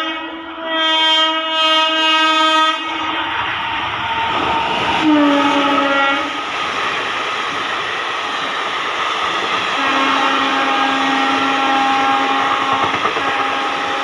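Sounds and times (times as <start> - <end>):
train horn: 0.0 - 3.4, 4.0 - 6.4, 9.8 - 14.0
train wheel and rail noise: 0.0 - 14.0.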